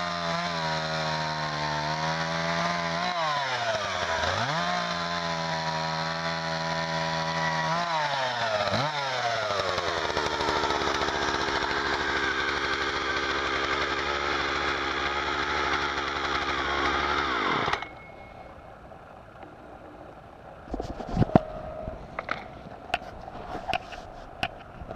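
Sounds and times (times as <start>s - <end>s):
chainsaw engine running: 0.0s - 18.0s.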